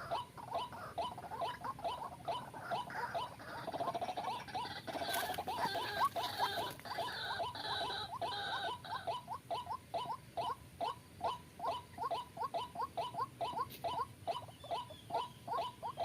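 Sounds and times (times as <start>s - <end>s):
waterhens calling short rising notes: 0.0s - 16.0s.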